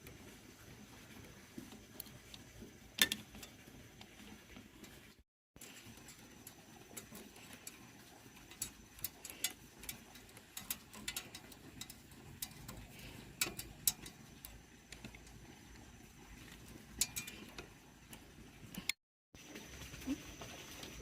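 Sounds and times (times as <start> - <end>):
light clicks and taps: 5.6 - 19.0.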